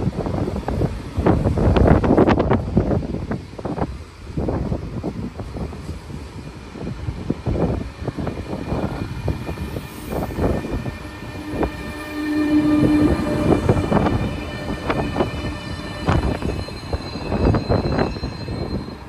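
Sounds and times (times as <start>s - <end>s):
train rumbling and clattering: 0.0s - 19.0s
steady tone: 8.5s - 19.0s.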